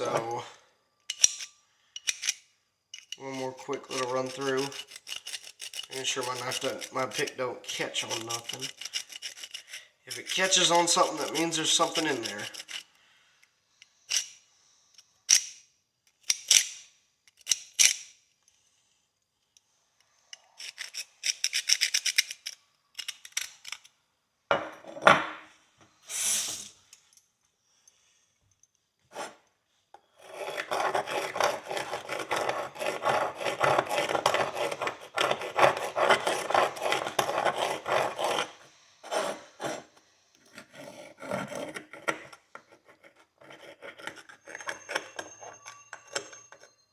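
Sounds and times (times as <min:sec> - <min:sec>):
hand pick scraping horseshoe: 0:00.0 - 0:00.4, 0:01.1 - 0:13.0, 0:13.7 - 0:15.6, 0:20.0 - 0:23.9, 0:29.1 - 0:46.9.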